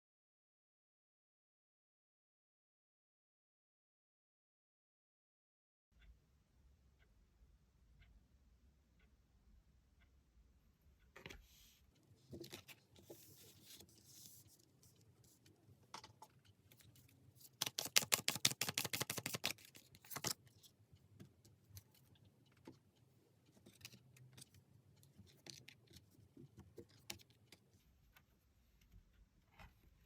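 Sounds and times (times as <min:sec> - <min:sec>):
cards being shuffled: 0:17.4 - 0:20.4.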